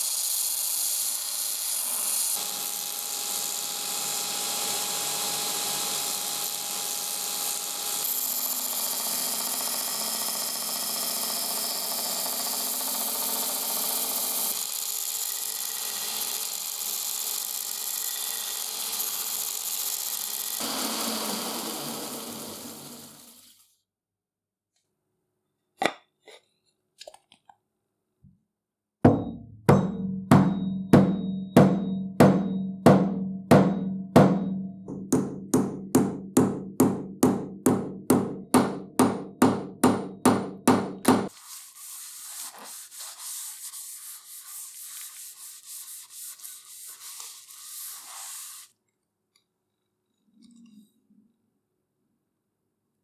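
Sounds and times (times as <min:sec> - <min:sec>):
hammer blows ringing: 0:29.1 - 0:41.3
scratchy rubbing hiss: 0:41.3 - 0:48.7.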